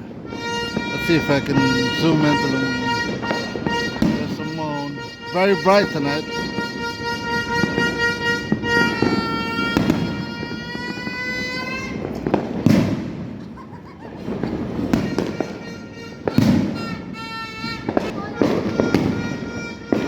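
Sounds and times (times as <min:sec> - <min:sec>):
long horn-like tone: 0:00.0 - 0:12.1
fireworks and firecrackers banging: 0:00.0 - 0:20.0.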